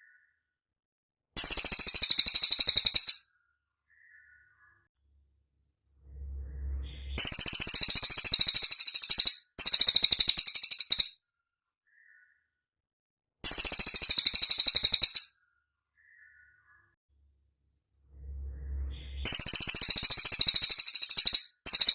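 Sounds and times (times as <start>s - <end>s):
songbird high-pitched trills: 1.4s - 3.2s, 6.6s - 11.1s, 13.4s - 15.3s, 18.7s - 21.9s
low rumble: 5.0s - 7.9s, 17.1s - 19.6s.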